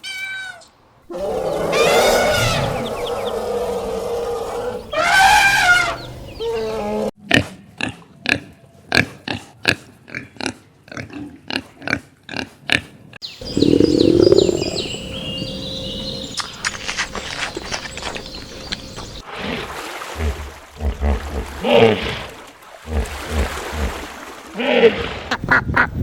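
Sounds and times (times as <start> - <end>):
animal grunting: 10.4 - 15.4.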